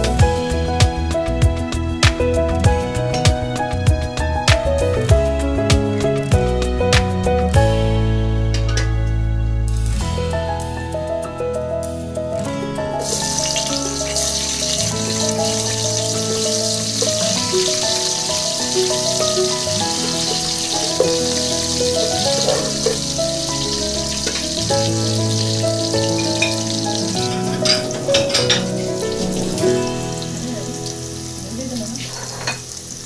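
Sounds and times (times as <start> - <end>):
background music: 0.0 - 33.0
onions sizzling in hot oil: 13.0 - 33.0.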